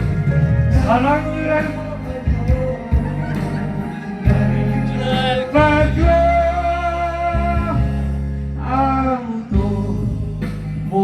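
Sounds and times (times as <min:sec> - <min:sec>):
backing band with bass and guitar: 0:00.0 - 0:11.0
person singing pop ballad: 0:00.0 - 0:11.0.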